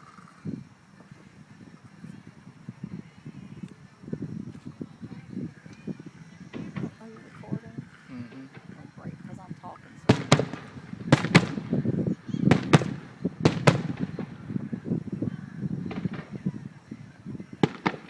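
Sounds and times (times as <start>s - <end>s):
fireworks bangs: 1.7s - 18.0s
faint firework pops: 4.5s - 18.0s.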